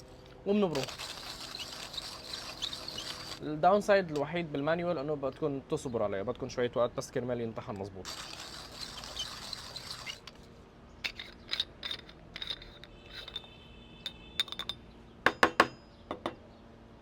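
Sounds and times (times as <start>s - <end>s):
coffee grinder crunching beans: 0.5s - 3.4s, 8.0s - 10.4s
short metallic ring: 11.9s - 16.3s.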